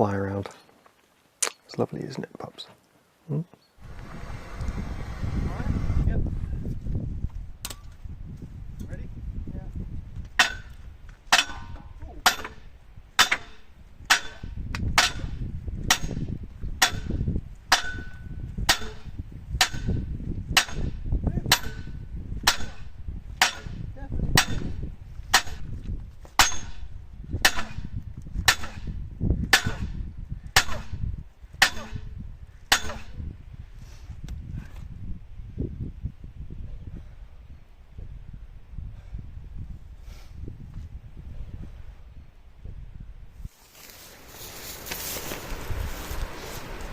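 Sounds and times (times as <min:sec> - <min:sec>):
sledgehammer clanging on steel: 0:10.4 - 0:16.2, 0:16.8 - 0:20.0, 0:21.5 - 0:21.9, 0:22.5 - 0:23.8, 0:24.4 - 0:25.7, 0:26.4 - 0:27.8.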